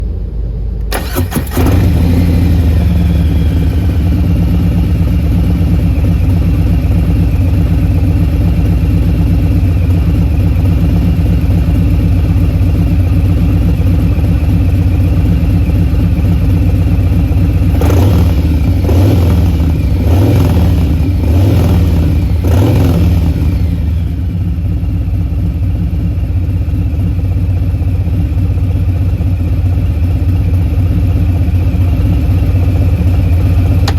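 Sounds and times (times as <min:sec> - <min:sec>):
motorcycle engine idling: 0:00.0 - 0:33.9
electric starter cranking: 0:00.8 - 0:02.0
motorcycle throttle blips: 0:00.8 - 0:24.4, 0:33.0 - 0:33.9.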